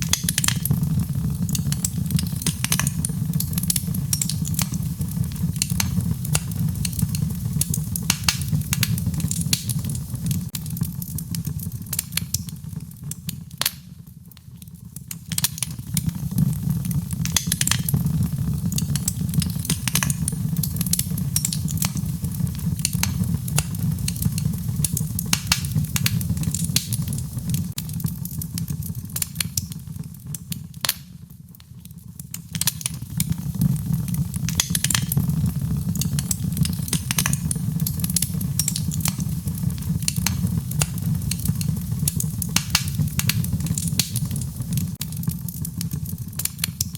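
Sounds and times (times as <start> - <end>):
wood fire crackling and popping: 0.0 - 46.9
rain: 32.6 - 46.9.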